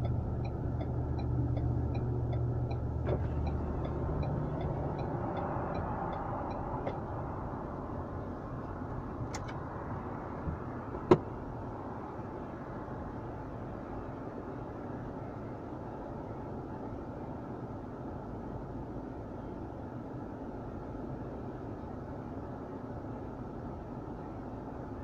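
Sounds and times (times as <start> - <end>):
turn signal ticking: 0.0 - 9.6
engine and road hum: 0.0 - 25.0.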